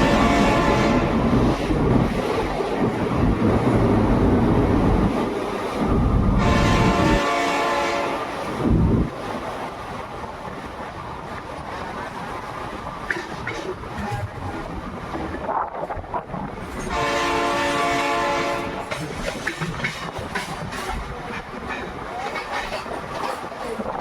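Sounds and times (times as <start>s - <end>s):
train horn: 0.0s - 1.6s, 6.4s - 8.5s, 16.9s - 19.0s
train rumbling: 0.0s - 24.0s.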